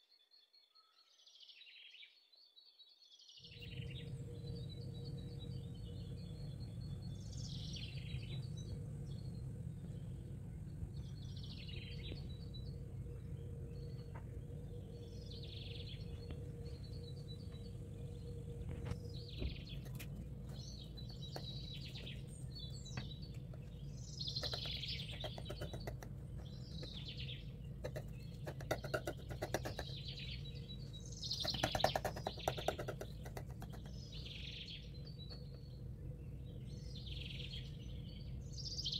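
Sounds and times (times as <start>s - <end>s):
small birds chirping: 0.3s - 38.9s
steady low hum: 3.5s - 38.9s
rapid clicking or rattling: 24.3s - 30.4s, 31.2s - 34.2s.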